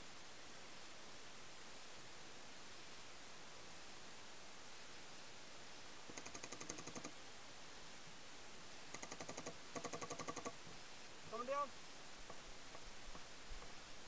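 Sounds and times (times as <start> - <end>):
paintball markers firing rapidly: 6.1 - 7.1, 9.0 - 10.6.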